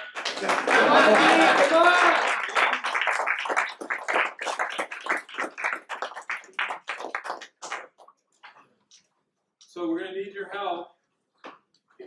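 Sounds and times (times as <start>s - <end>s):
hands clapping: 0.0s - 9.0s.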